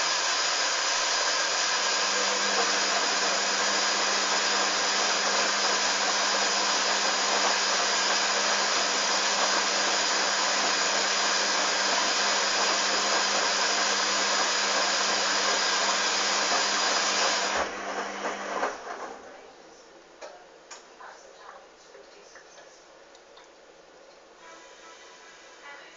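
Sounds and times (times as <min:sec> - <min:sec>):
water rushing into washing machine: 0:00.0 - 0:19.2.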